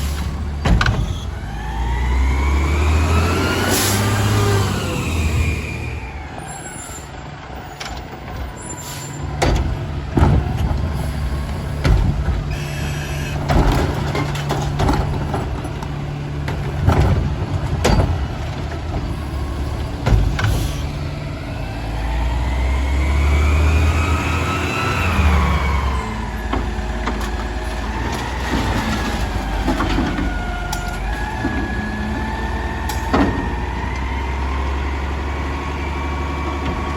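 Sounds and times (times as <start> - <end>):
garbage truck engine hum: 0.0 - 36.9
cart knocks and clatters: 0.1 - 1.4, 7.6 - 12.6, 13.4 - 20.9, 26.4 - 32.3
engine revving up: 1.6 - 6.0, 21.3 - 26.3.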